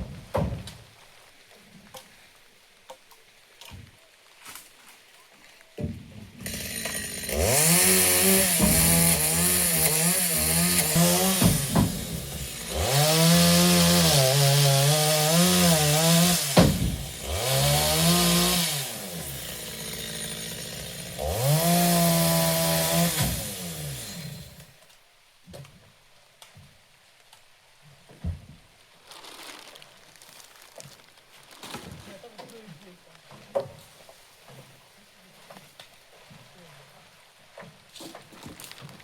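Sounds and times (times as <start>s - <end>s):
chainsaw revving and cutting logs: 6.4s - 24.8s.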